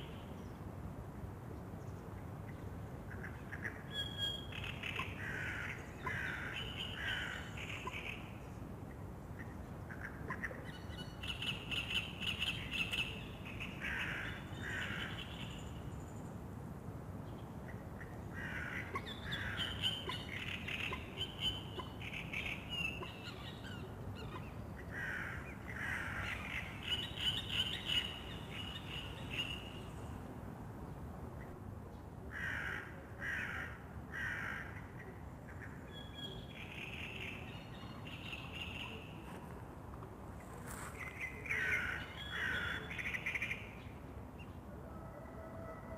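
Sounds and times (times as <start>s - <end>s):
steady low background noise: 0.0s - 45.9s
birds calling: 40.7s - 43.8s.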